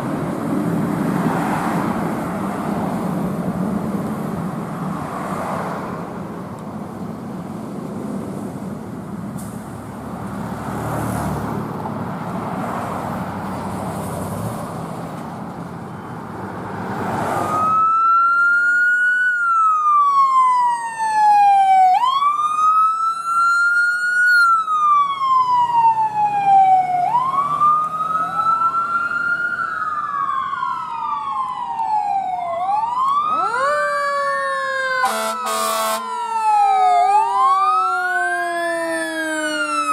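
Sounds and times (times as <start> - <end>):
passing traffic noise: 0.0 - 39.9
emergency siren wailing: 17.0 - 39.9
second siren tone: 31.4 - 39.9.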